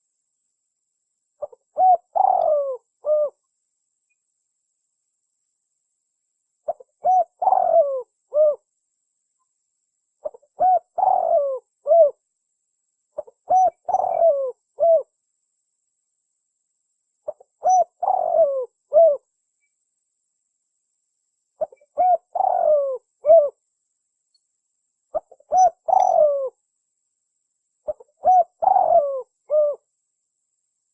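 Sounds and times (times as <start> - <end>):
dove cooing: 1.4 - 3.4, 6.7 - 8.6, 10.2 - 12.2, 13.2 - 15.1, 17.3 - 19.2, 21.6 - 23.6, 25.1 - 26.6, 27.9 - 29.9.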